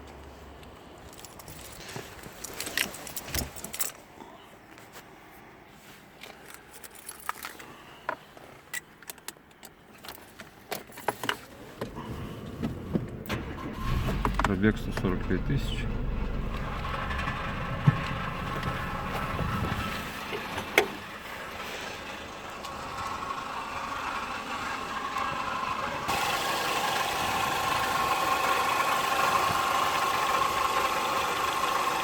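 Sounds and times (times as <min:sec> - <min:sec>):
car engine idling: 0:11.9 - 0:32.0
steady hum: 0:13.4 - 0:20.3.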